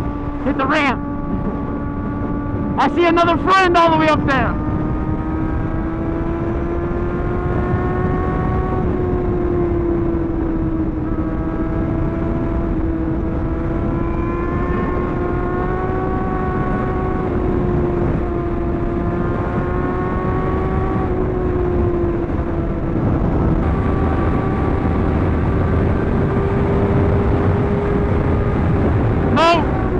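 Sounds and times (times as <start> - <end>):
motorcycle engine running: 0.0 - 29.9
wind and road noise: 0.0 - 29.9.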